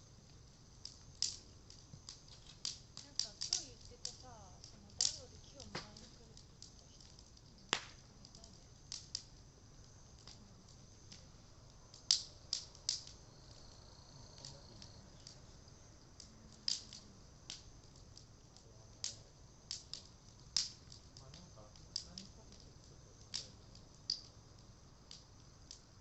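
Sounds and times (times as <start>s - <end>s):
bonfire crackling and popping: 0.0s - 26.0s.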